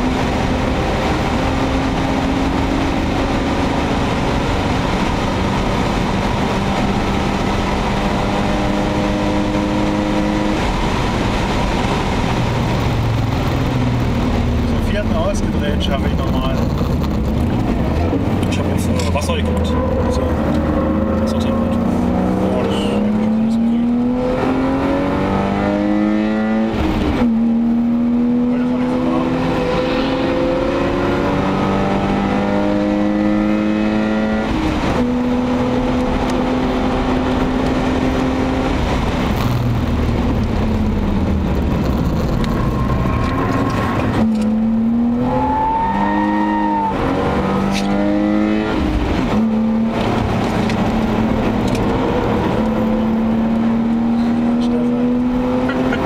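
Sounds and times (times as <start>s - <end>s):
car engine accelerating and shifting: 0.0s - 56.0s.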